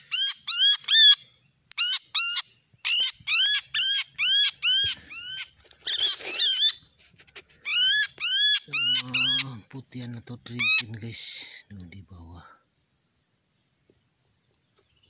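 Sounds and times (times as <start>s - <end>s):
bird harsh repeated call: 0.0s - 6.9s, 7.6s - 9.7s, 10.6s - 11.0s.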